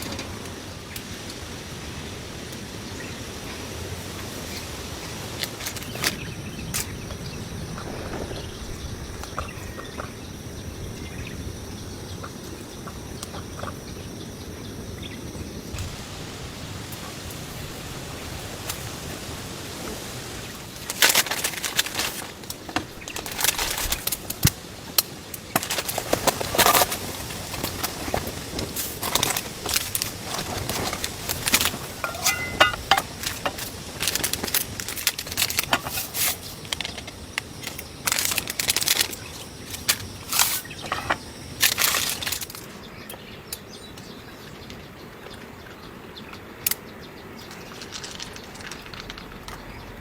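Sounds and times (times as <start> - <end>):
steady hiss: 0.0 - 50.0
rustling and crinkling: 18.5 - 42.8, 47.4 - 50.0.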